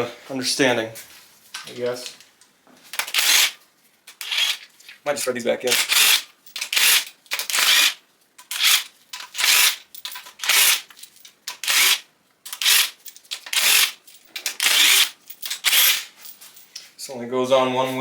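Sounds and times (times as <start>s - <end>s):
ratchet wrench clicking: 3.0s - 3.6s, 5.7s - 10.9s, 11.5s - 16.0s.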